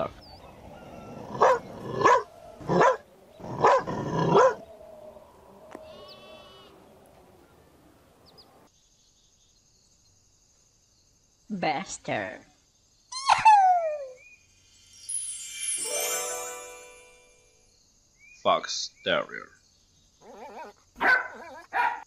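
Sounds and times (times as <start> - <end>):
dog barking: 1.3 - 3.0, 3.6 - 4.6, 20.3 - 22.0.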